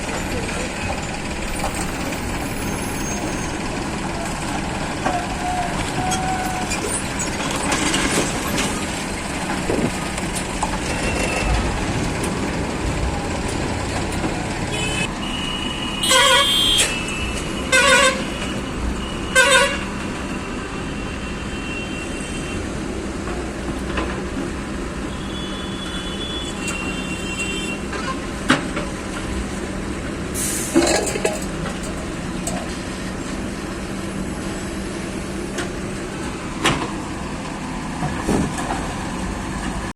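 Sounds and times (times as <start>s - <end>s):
heavy machinery engines running: 0.0s - 15.1s, 28.2s - 39.9s
vehicle horn toots: 14.7s - 18.6s, 19.3s - 19.9s, 25.2s - 27.8s.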